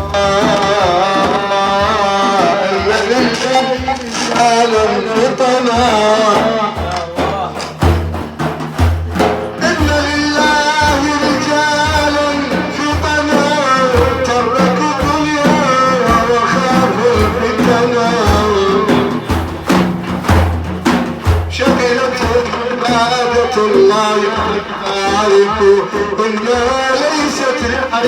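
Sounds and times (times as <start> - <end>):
man singing ornamented phrases: 0.0 - 7.9, 9.5 - 20.0, 21.4 - 28.0
drum beats: 0.0 - 28.0.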